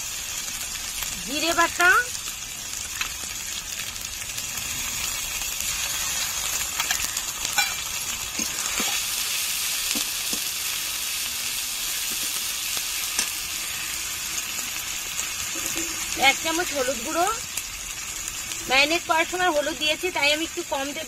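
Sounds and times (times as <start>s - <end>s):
spices sizzling in hot oil: 0.0s - 21.0s
spatula scraping and tapping pan: 6.8s - 7.8s.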